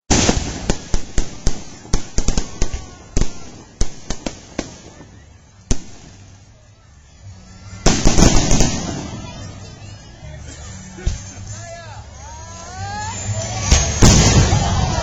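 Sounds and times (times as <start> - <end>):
fireworks bangs: 0.1 - 6.5, 7.4 - 10.0, 13.0 - 15.0.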